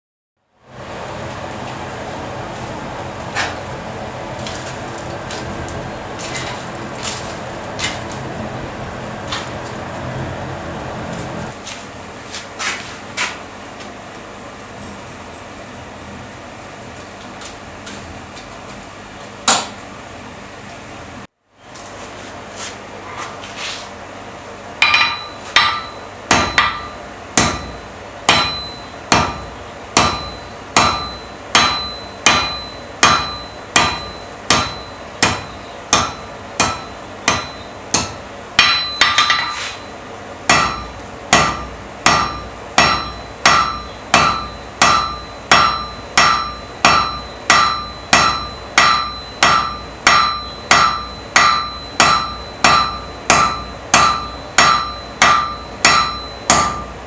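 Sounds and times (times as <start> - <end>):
hammer striking iron on anvil: 24.8 - 39.9, 40.5 - 57.0.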